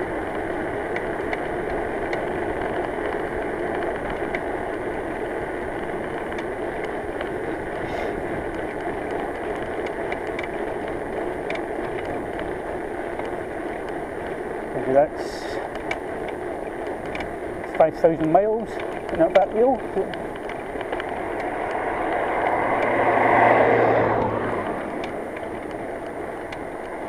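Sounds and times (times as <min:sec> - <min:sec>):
bicycle rushing noise: 0:00.0 - 0:27.0
light clicks from bicycle hub: 0:00.4 - 0:04.6, 0:05.8 - 0:14.4, 0:15.2 - 0:23.0, 0:25.0 - 0:27.0.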